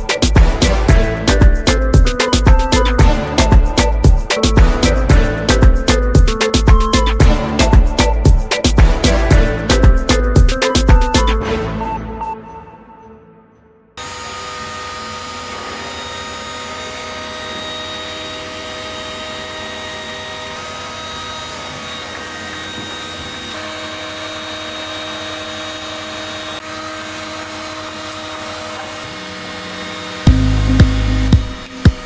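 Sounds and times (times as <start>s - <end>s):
electric power tool running: 14.0s - 32.0s.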